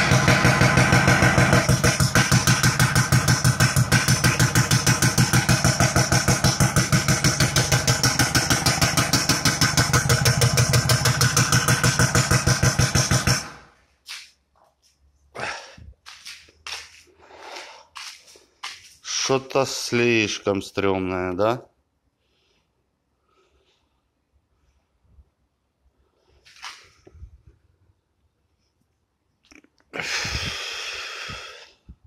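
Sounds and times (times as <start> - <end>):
diesel engine pulsing rattle: 0.0 - 13.8.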